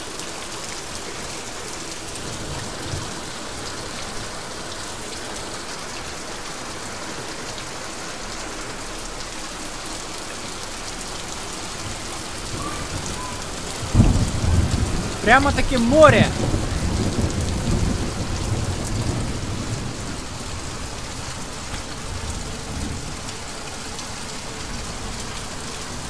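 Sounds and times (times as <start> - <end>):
heavy rain on standing water: 0.0 - 26.0.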